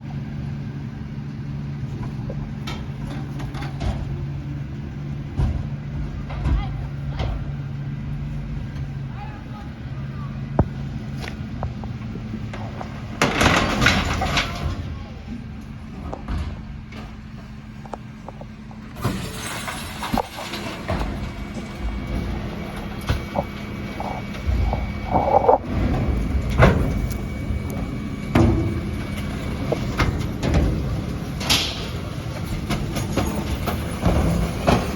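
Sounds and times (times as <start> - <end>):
diesel engine idling: 0.0 - 34.9
refuse truck humming: 0.0 - 34.9
knocks and clatter: 1.9 - 4.4, 5.2 - 7.7, 10.6 - 34.9
heavy thump: 5.3 - 7.6.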